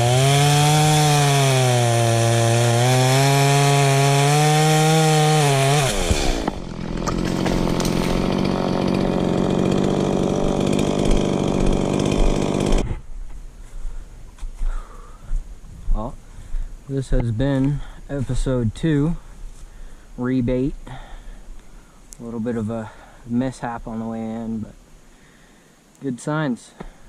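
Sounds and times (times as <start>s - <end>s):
chainsaw cutting wood: 0.0s - 13.0s.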